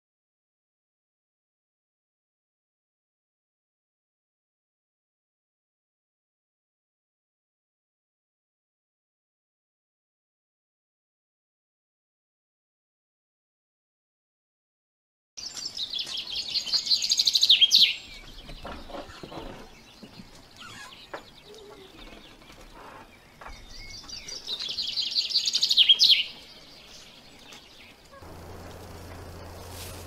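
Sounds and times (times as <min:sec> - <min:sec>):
faint bird chirps: 0:15.4 - 0:30.0
songbird trilling song: 0:15.4 - 0:30.0
steady low hum: 0:28.2 - 0:30.0.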